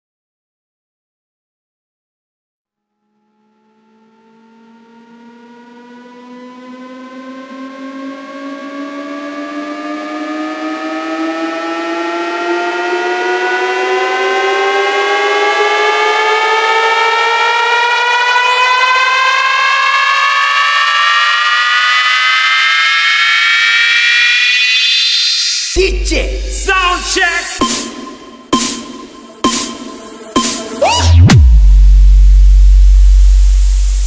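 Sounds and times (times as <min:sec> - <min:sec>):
buzzy rising electronic tone: 0:20.6 - 0:34.0.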